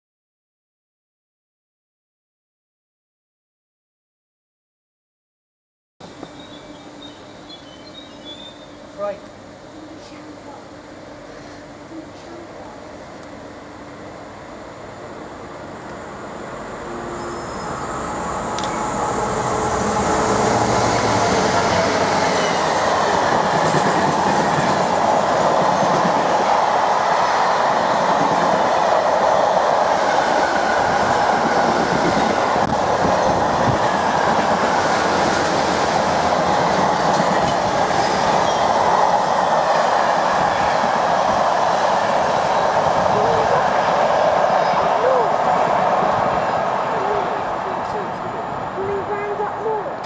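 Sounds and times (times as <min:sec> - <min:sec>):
train wheels on rails: 0:15.6 - 0:50.0.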